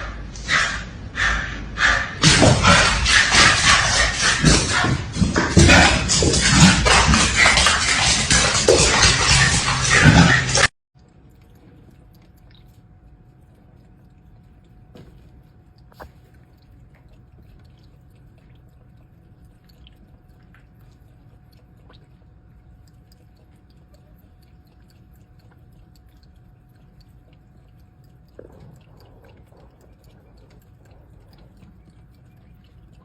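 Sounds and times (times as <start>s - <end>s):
steady low hum: 0.0s - 33.0s
faint chewing: 11.0s - 33.0s.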